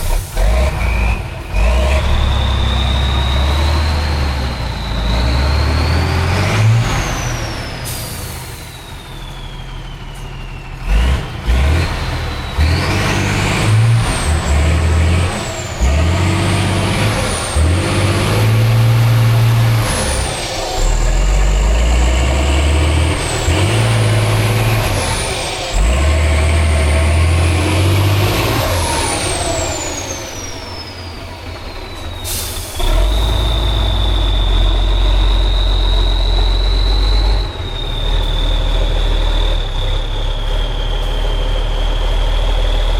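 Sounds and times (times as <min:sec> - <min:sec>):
diesel truck engine revving: 0:00.0 - 0:42.9
turbo whistle: 0:31.8 - 0:39.6.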